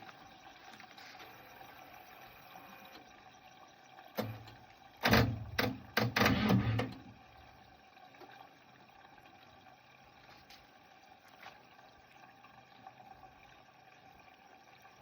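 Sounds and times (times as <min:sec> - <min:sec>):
generator starter turning over: 0:04.2 - 0:07.2.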